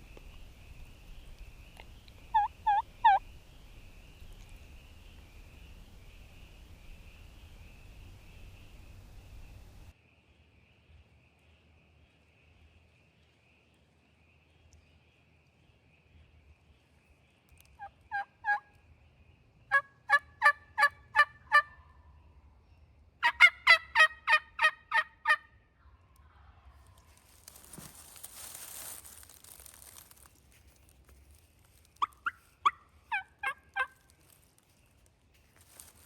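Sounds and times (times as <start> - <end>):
turkey yelping: 2.3 - 3.2, 18.1 - 18.6, 19.7 - 21.8, 23.2 - 25.4, 32.0 - 34.0
rustling noise: 26.8 - 36.0.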